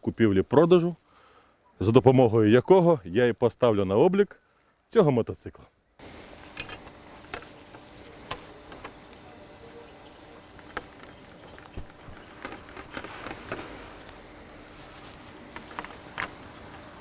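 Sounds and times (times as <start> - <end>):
faint steady hum: 6.0 - 17.0
light clicks and taps: 6.0 - 17.0.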